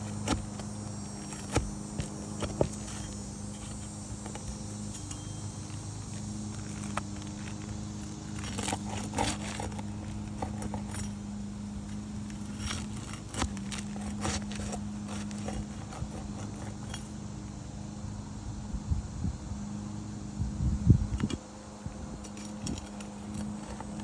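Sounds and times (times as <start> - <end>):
shingles cracking and scraping: 0.0 - 17.2
steady low hum: 0.0 - 24.0.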